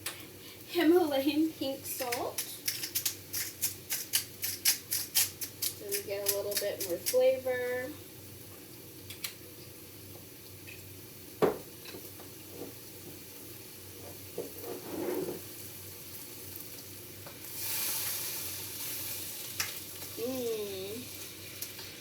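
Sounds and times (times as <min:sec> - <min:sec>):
vegetables sizzling in a pan: 0:00.0 - 0:22.0
utensil clicking against pan: 0:02.0 - 0:07.2.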